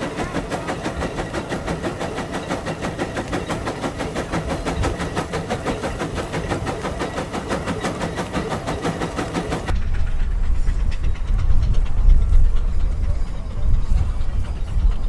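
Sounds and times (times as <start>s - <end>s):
steam engine chuffing: 0.0s - 15.0s
heavy low rumble: 9.7s - 15.0s.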